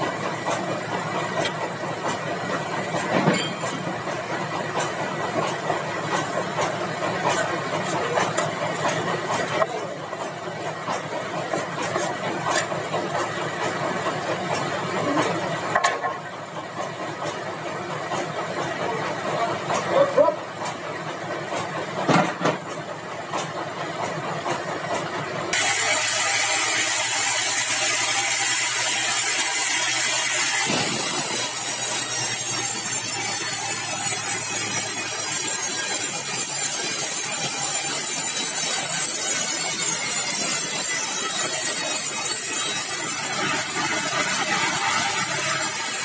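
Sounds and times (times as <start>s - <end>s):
machine running: 0.0s - 46.0s
saw cutting through log: 3.7s - 15.8s, 23.4s - 46.0s.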